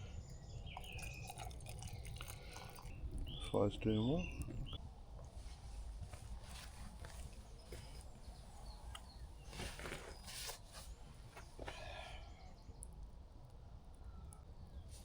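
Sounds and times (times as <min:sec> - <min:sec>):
faint bird chirps: 0:00.0 - 0:04.8, 0:06.6 - 0:13.0
crackles and rustles: 0:04.3 - 0:11.9.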